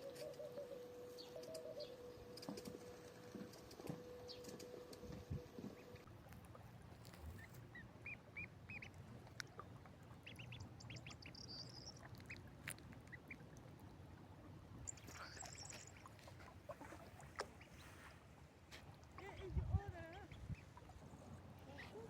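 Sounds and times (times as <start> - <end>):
ducklings peeping: 7.3 - 9.0, 10.1 - 13.4.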